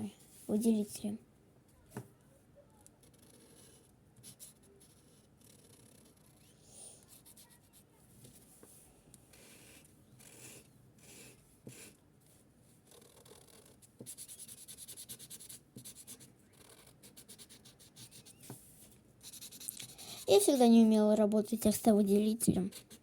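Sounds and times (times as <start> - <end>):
quick scribbling strokes: 13.0 - 20.5.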